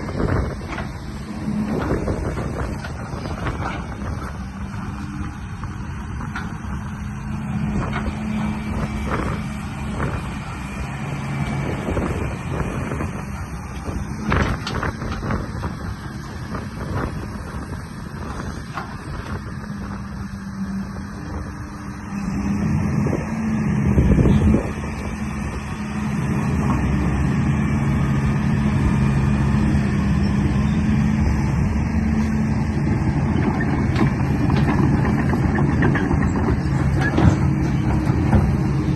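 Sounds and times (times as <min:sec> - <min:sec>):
low motor drone: 0:00.0 - 0:38.9
clunks and knocks: 0:00.2 - 0:05.4, 0:11.5 - 0:17.2, 0:18.2 - 0:19.6, 0:33.0 - 0:38.9.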